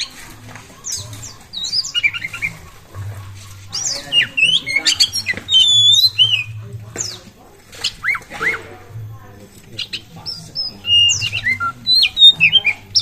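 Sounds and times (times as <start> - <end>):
bird singing varied whistles: 3.7 - 6.6, 9.8 - 13.0.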